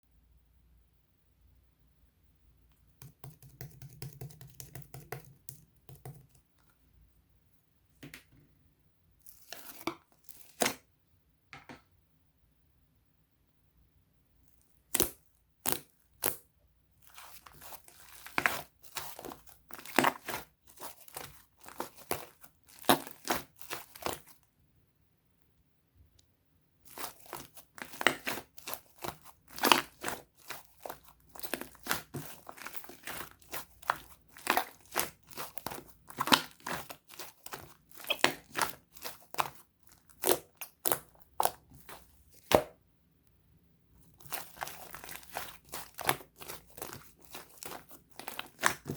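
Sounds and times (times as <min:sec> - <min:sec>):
slime crackling and popping: 0:17.0 - 0:24.4, 0:26.8 - 0:42.7, 0:44.0 - 0:48.9.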